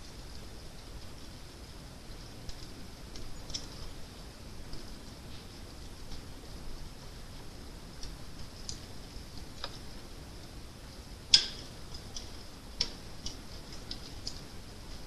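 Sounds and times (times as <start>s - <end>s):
fire crackling: 0.0s - 15.0s
fire hissing: 0.0s - 15.0s.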